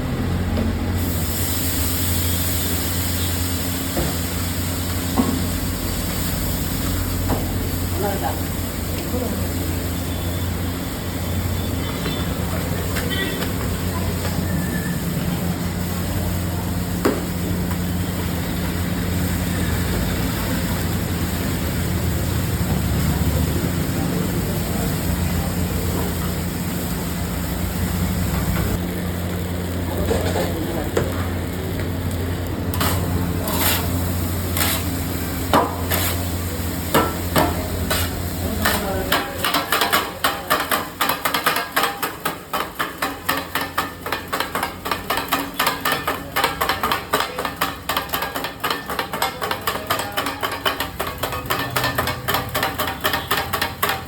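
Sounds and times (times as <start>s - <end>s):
metal blades clanking on iron griddle: 32.7s - 54.0s.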